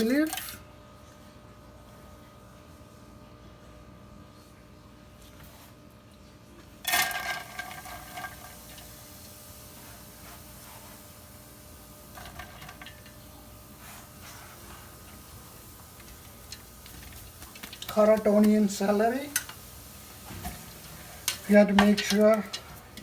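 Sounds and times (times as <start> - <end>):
hot oil sizzling: 6.8 - 23.0
utensil clinking on pot: 20.4 - 23.0.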